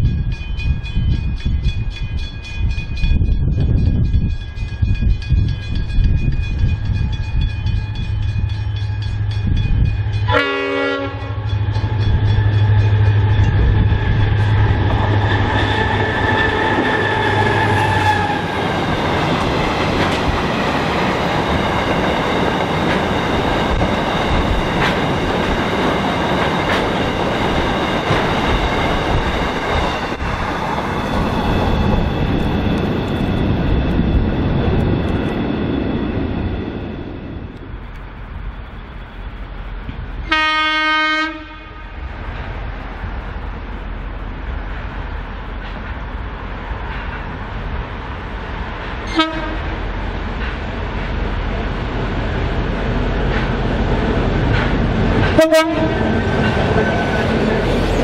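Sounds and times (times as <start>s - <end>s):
train horn blast: 10.3s - 11.5s, 40.2s - 42.1s, 49.0s - 49.8s, 55.4s - 56.1s.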